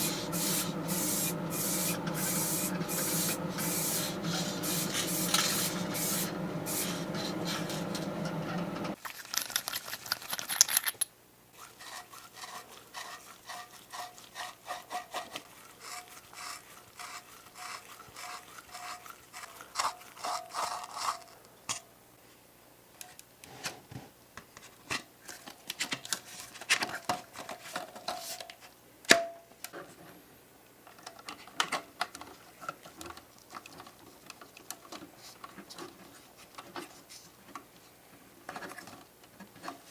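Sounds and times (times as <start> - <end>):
hand sanding or filing strokes: 0.0 - 8.4, 11.6 - 20.8
loud hissing whirring noise: 0.0 - 9.0.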